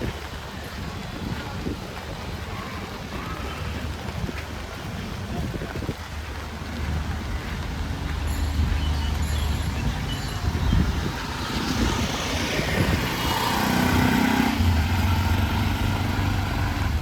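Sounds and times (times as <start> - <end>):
vehicle engines running: 0.0 - 17.0
vehicle passing close by: 8.8 - 17.0.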